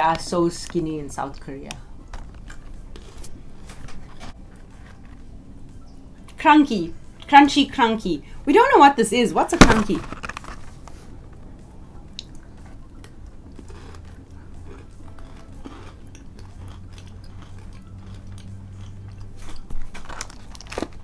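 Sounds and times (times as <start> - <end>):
chewing crunchy biscuit: 0.2 - 5.3, 12.2 - 21.0.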